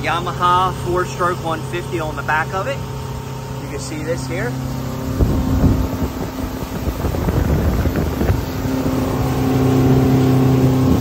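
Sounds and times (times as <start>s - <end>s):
outboard engine hum: 0.0s - 11.0s
water rushing: 0.0s - 11.0s
wind buffeting microphone: 4.6s - 11.0s.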